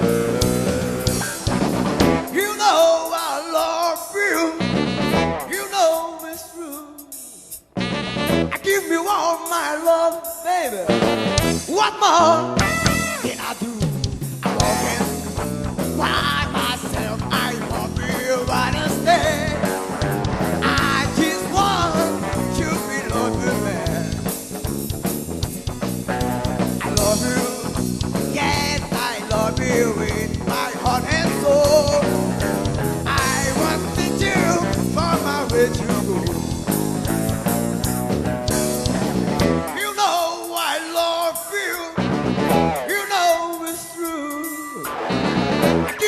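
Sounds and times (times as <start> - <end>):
live blues band playing: 0.0 - 46.0
lead guitar bending notes: 4.6 - 5.5, 7.8 - 8.6, 12.4 - 13.4, 44.8 - 46.0.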